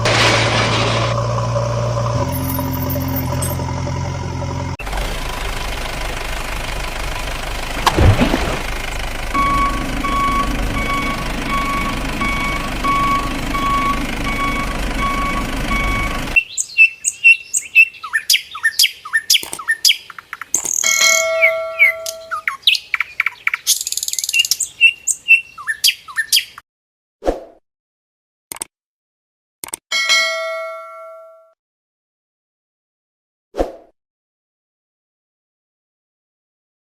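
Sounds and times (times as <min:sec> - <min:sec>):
truck engine running: 0:00.0 - 0:16.4
reversing beeper: 0:02.0 - 0:04.7, 0:09.3 - 0:16.4
birds chirping: 0:08.6 - 0:26.6.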